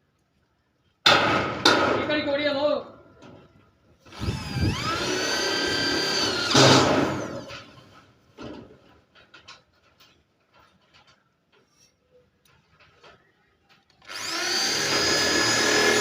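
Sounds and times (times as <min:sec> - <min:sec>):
electric drill spinning: 0:04.1 - 0:07.5, 0:14.0 - 0:16.0.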